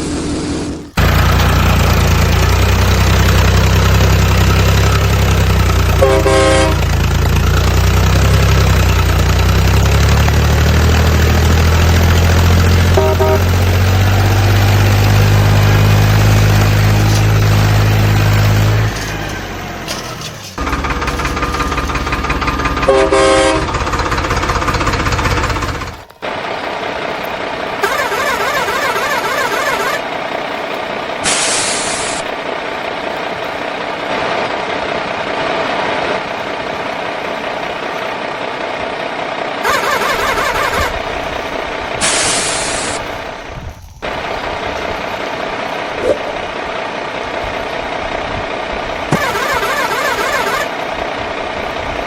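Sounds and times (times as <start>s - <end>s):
heavy vehicle engine running: 0.0s - 52.0s
horn honks: 5.9s - 7.1s, 12.8s - 13.8s, 22.8s - 23.8s, 27.8s - 30.0s, 49.1s - 50.7s.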